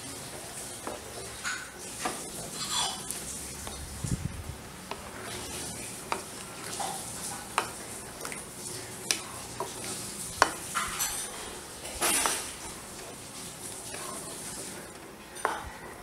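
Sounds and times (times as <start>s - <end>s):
simmering gravy hiss: 0.0s - 16.0s
spatula scraping pan: 4.8s - 16.0s.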